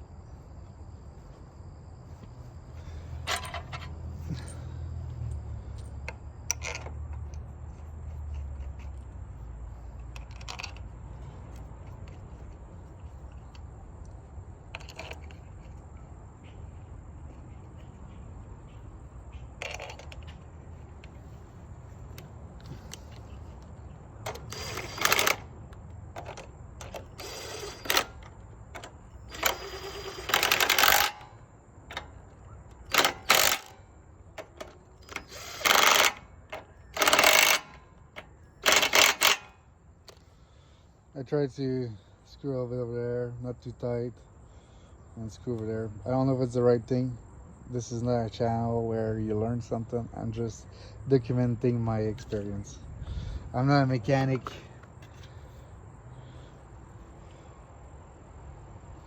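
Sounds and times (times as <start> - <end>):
metal tools clinking and rattling: 3.2 - 4.7, 9.9 - 10.9, 26.2 - 33.8, 34.4 - 39.6.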